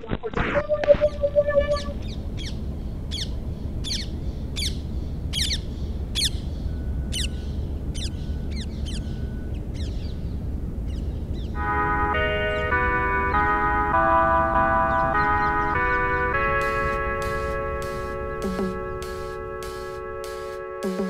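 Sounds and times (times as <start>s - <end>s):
synthesizer chords: 0.6s - 2.1s, 11.6s - 21.0s
bird chirping: 1.0s - 11.6s, 14.6s - 21.0s.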